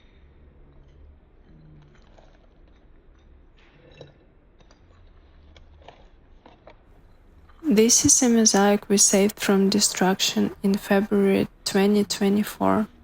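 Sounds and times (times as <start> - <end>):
low steady hum: 7.6 - 13.0.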